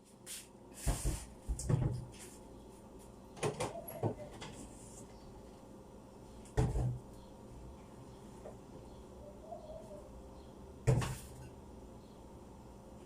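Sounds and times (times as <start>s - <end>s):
refrigerator door knocks and bumps: 1.5s - 2.1s.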